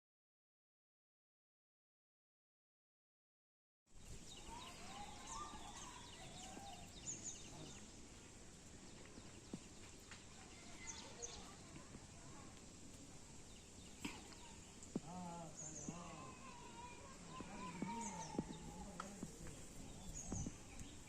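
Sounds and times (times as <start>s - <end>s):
steady outdoor hiss: 3.9s - 21.0s
high bird chirps: 4.0s - 7.9s
faint distant voices: 4.0s - 21.0s.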